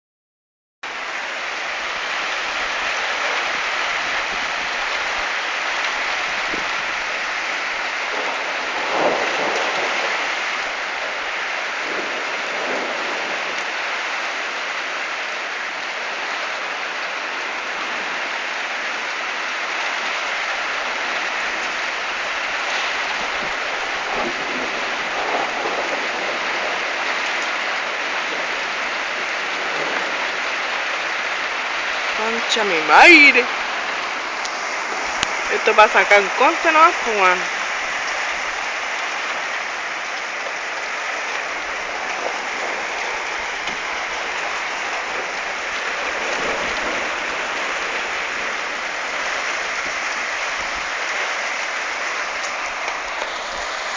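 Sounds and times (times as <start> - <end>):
heavy rain falling: 0.9 - 53.9
thunder rumbling: 1.7 - 14.4, 20.2 - 53.7.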